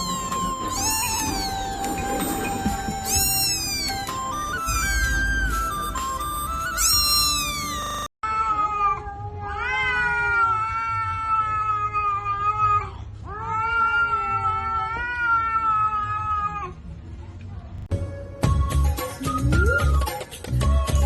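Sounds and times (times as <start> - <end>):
cat yowling: 0.0 - 5.5, 6.7 - 16.8
music: 0.0 - 8.1, 17.9 - 21.0.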